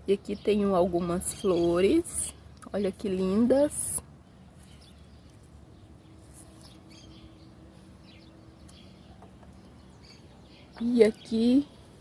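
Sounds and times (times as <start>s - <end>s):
bird chirps: 4.2s - 11.7s.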